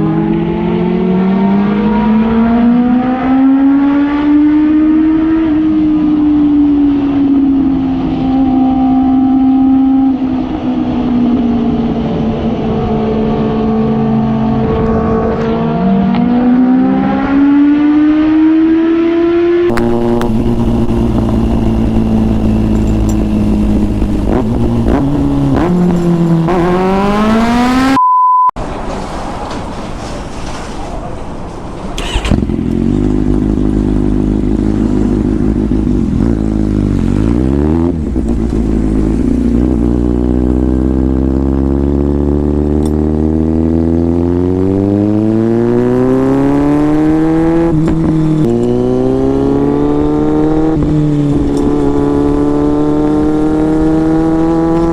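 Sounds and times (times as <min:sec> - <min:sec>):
motorcycle engine accelerating: 0:00.0 - 0:28.0, 0:32.0 - 0:54.9
short beep tone: 0:27.7 - 0:28.6.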